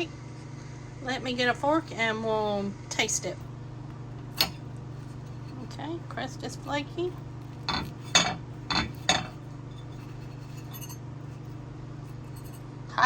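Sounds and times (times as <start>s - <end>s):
fork clinking on plate: 4.3s - 5.6s, 6.6s - 12.6s.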